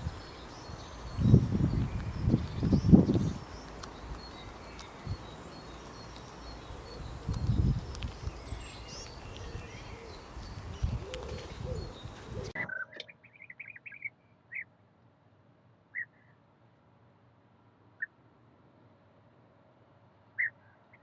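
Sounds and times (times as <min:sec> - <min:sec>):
small birds chirping: 0:00.0 - 0:14.7.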